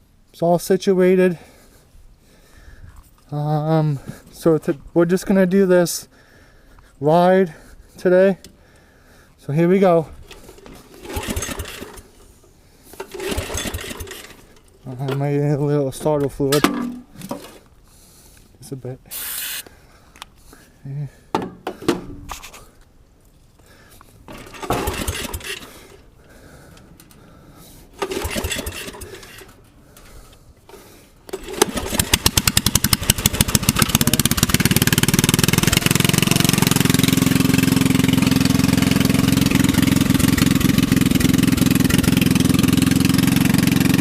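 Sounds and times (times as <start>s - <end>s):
lawnmower engine cranking and running: 9.6s - 18.1s, 23.8s - 44.0s.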